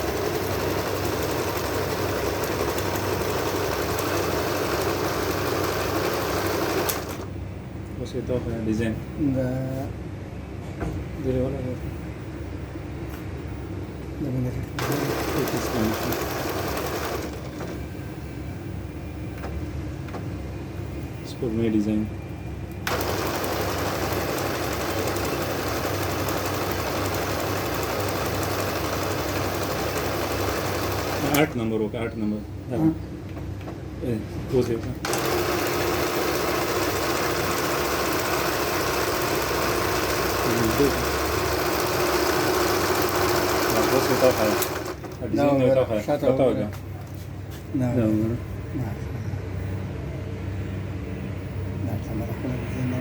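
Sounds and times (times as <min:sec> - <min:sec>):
sewing machine whirring: 0:00.0 - 0:07.3, 0:14.8 - 0:17.9, 0:22.8 - 0:31.7, 0:35.0 - 0:45.5.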